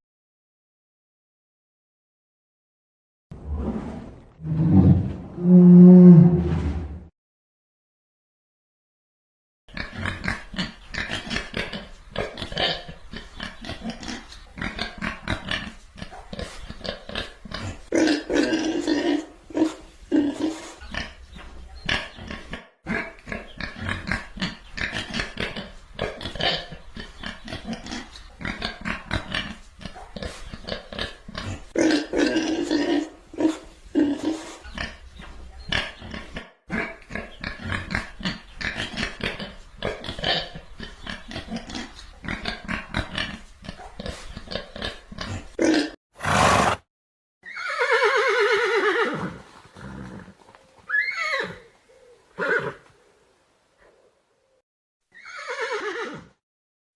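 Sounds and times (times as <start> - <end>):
horse whinnying: 46.2 - 46.8, 47.4 - 50.3, 50.9 - 51.7, 52.4 - 52.8, 55.1 - 56.4.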